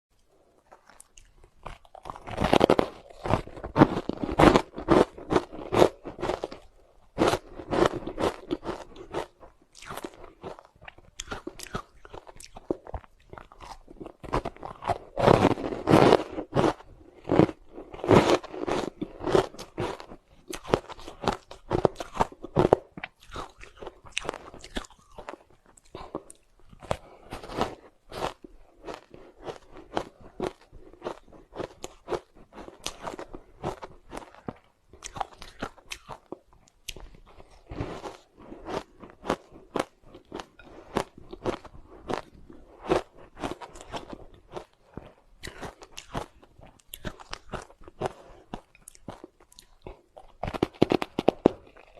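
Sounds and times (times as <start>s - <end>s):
ice crunching while chewed: 0.2s - 51.9s.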